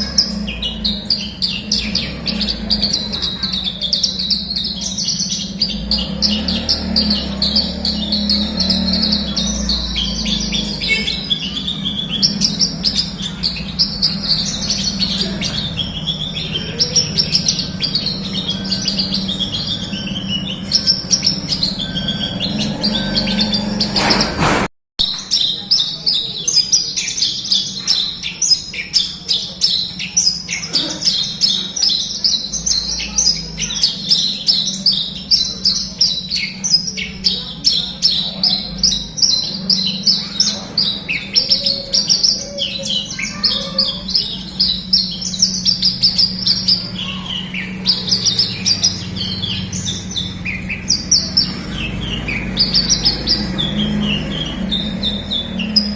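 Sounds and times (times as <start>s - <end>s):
bird singing high chirps: 0.0s - 24.3s, 25.0s - 55.9s
steady low hum: 0.0s - 24.7s.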